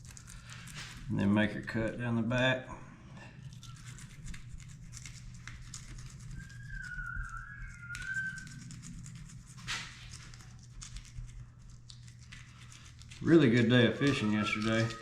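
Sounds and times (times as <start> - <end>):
steady low hum: 0.0 - 15.0
wavering whistle-like tone: 6.3 - 8.8, 13.2 - 15.0.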